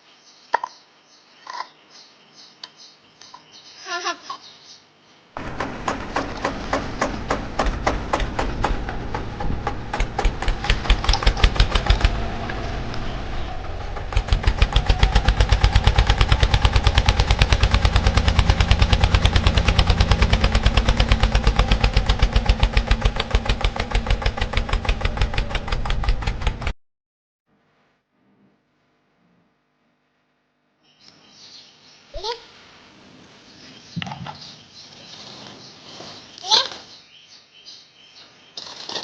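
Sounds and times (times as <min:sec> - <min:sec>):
tractor engine knocking: 0:05.4 - 0:26.8.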